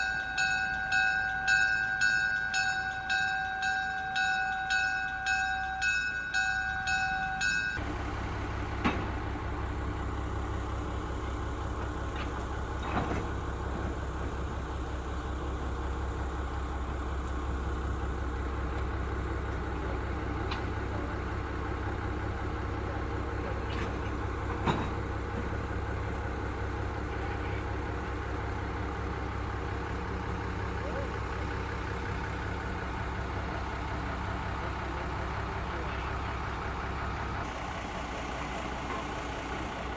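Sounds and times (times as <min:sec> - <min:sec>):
locomotive bell ringing: 0:00.0 - 0:07.9, 0:19.2 - 0:37.6
locomotive engine idling: 0:00.0 - 0:39.9.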